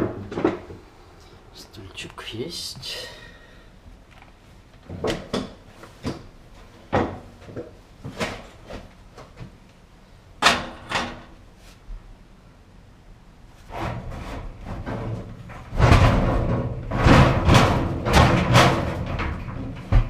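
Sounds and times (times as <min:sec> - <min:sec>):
knocks and clunks of dryer parts: 0:04.8 - 0:09.6, 0:10.4 - 0:11.4, 0:13.7 - 0:20.0.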